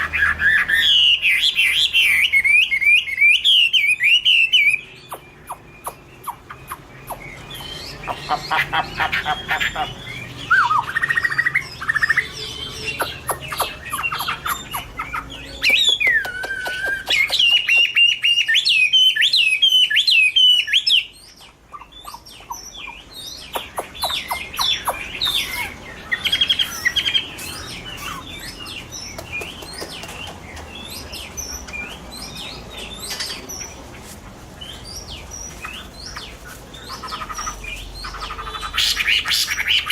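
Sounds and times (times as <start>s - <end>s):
bird singing whistled phrases: 9.8s - 21.2s.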